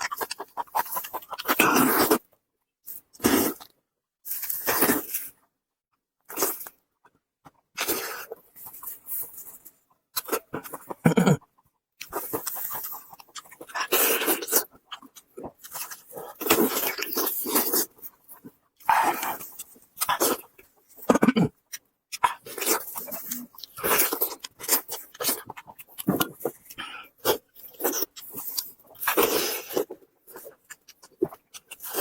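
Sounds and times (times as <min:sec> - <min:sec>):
person chewing meat: 0:00.0 - 0:05.5, 0:06.2 - 0:32.0
mouth smacking noises: 0:10.2 - 0:27.3.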